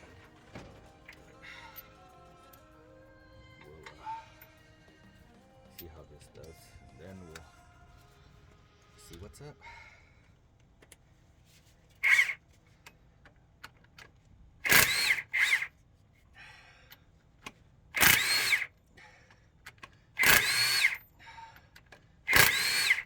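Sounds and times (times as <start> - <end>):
cordless power tool motor whining: 0.0 - 6.6, 12.0 - 12.4, 14.6 - 15.7, 18.0 - 18.7, 20.2 - 21.0, 22.3 - 23.0.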